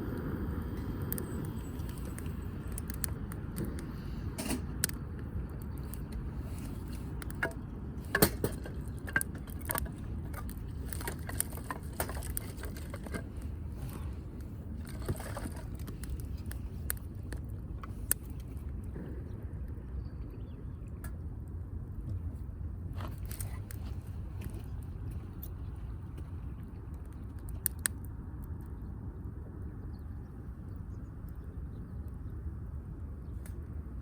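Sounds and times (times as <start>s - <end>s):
firewood crackling and popping: 0.0s - 19.8s, 22.9s - 28.8s
low fire rumble: 0.0s - 34.0s.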